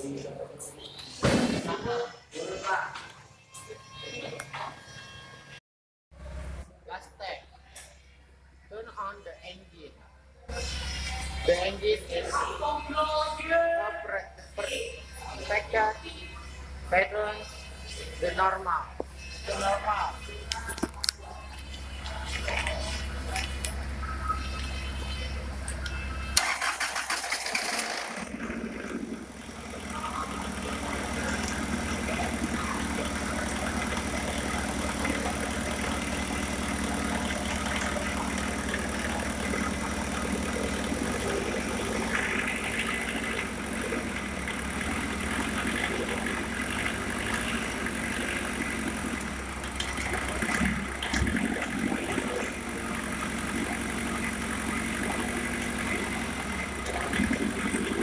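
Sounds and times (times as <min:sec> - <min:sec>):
diesel engine idling: 0:15.0 - 0:58.0.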